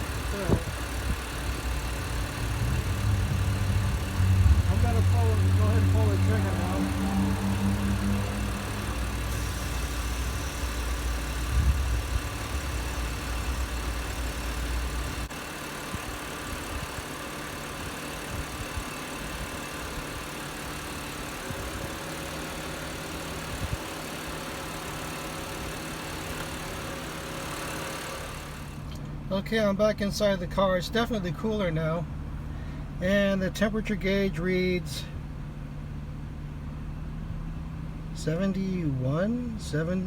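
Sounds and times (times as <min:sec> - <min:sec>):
heavy low rumble: 0:00.0 - 0:15.3
car engine idling: 0:00.0 - 0:40.0.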